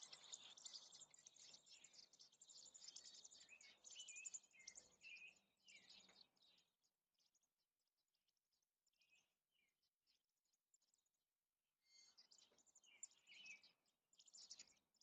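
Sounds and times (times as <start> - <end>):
whistled bird phrases: 0.0 - 6.6, 11.9 - 14.8
birds chirping: 0.0 - 7.4, 11.9 - 15.0.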